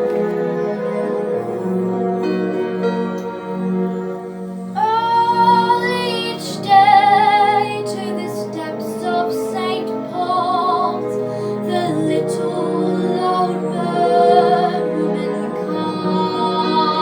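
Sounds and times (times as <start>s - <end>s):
soft instrumental accompaniment: 0.0s - 17.0s
girl singing with vibrato: 4.8s - 17.0s.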